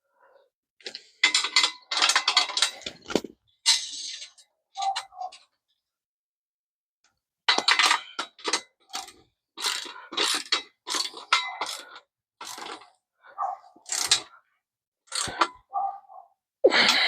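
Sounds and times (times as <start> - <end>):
ratchet wrench clicking: 7.8 - 12.8, 13.8 - 14.3, 15.1 - 15.5.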